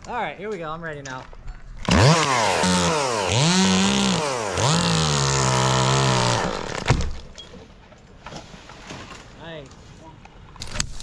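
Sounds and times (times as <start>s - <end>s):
chainsaw running at full throttle: 1.8s - 7.2s.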